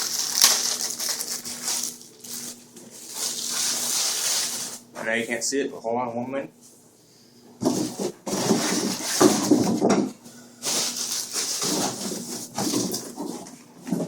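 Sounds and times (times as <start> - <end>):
packaging rustling and scraping: 0.0 - 4.9, 7.6 - 9.9, 10.6 - 14.0.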